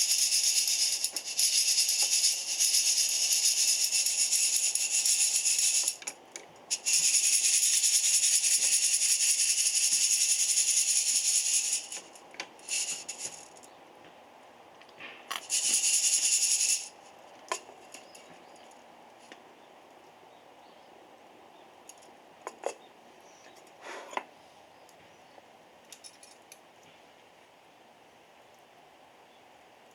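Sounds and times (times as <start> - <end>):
coffee beans rattling: 0.0 - 13.7, 15.2 - 18.6.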